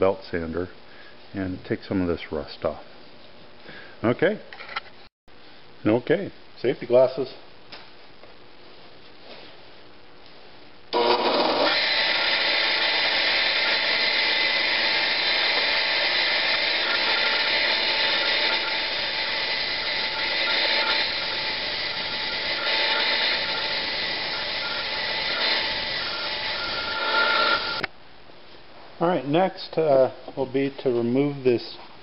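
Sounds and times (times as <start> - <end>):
belt sander grinding metal: 11.0 - 27.9.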